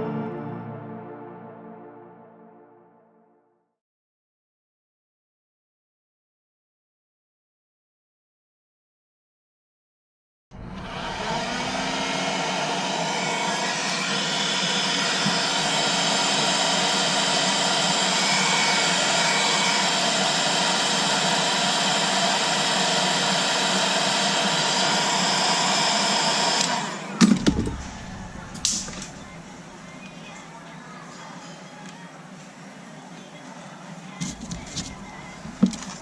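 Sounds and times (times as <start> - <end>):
hot-air gun blowing: 10.8 - 29.8.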